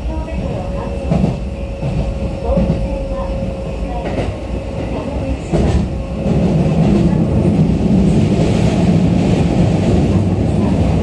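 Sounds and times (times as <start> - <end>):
train interior rumble: 0.0 - 11.0.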